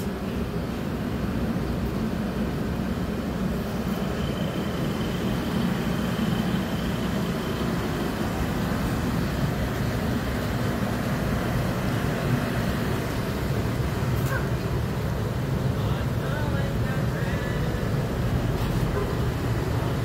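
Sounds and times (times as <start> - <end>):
train wheels rumbling on rails: 0.0 - 20.0
faint high whine: 1.5 - 18.1.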